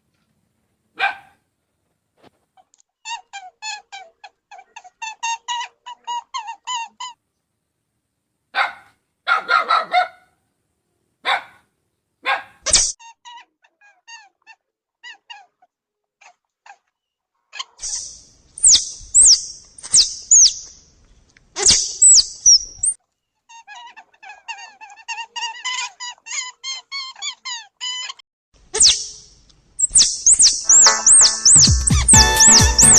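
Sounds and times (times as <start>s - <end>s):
animal squeals and yelps: 3.0s - 7.2s, 12.7s - 16.9s, 17.6s - 20.5s, 21.6s - 28.2s, 28.8s - 29.2s, 29.8s - 32.9s
light background music: 30.7s - 32.9s.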